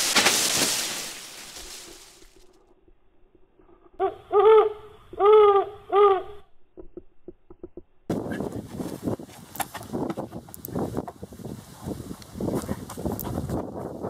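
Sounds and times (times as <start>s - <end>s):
footsteps on gravel: 0.0s - 2.3s
owl-like hoots: 4.0s - 6.5s.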